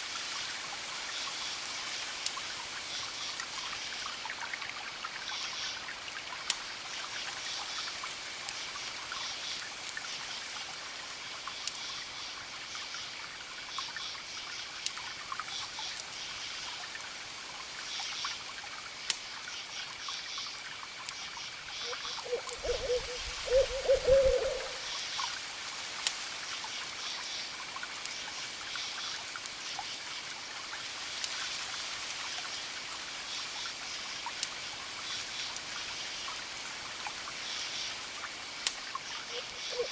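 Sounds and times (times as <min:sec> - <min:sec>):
campfire crackling: 0:00.0 - 0:39.9
crickets chirping: 0:19.5 - 0:25.3, 0:37.4 - 0:39.9
owl hooting: 0:21.9 - 0:24.9, 0:39.3 - 0:39.9.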